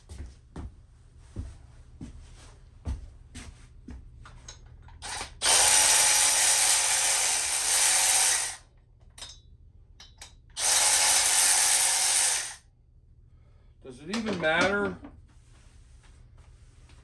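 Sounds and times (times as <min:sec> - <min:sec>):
power ratchet spinning: 0:05.0 - 0:08.6, 0:10.6 - 0:12.6.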